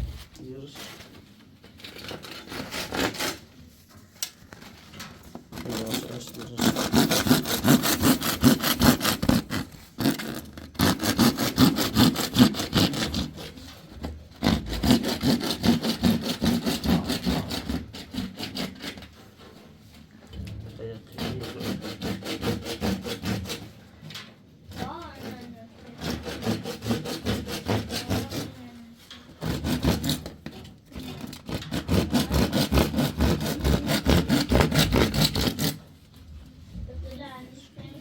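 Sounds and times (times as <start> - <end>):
hand saw strokes: 1.8 - 3.5, 5.5 - 19.8, 20.9 - 23.8, 24.7 - 35.9.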